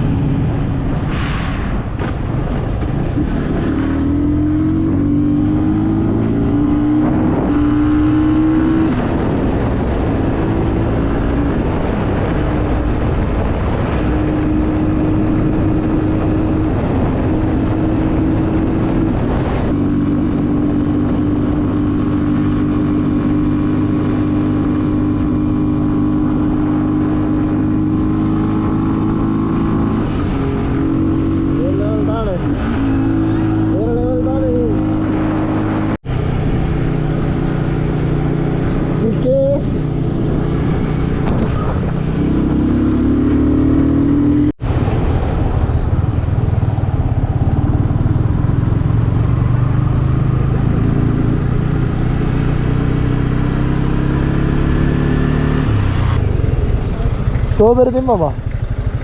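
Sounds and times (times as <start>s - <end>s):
road and wind noise: 0.0s - 59.0s
vehicle engine running: 53.6s - 59.0s.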